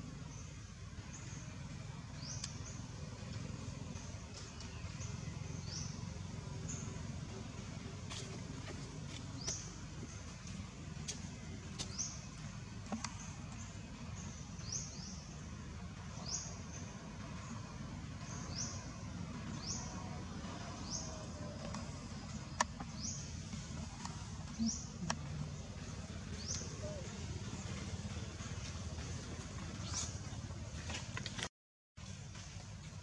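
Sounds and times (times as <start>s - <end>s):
low steady rumble: 0.0s - 33.0s
bird chirping: 18.2s - 31.0s.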